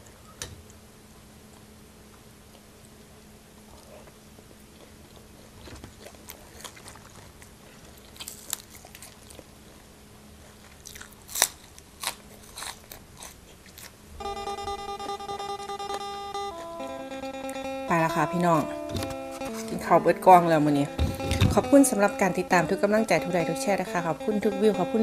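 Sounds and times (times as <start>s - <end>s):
crunching raw vegetable: 5.1s - 9.6s, 10.6s - 14.0s
acoustic guitar music: 14.2s - 25.0s.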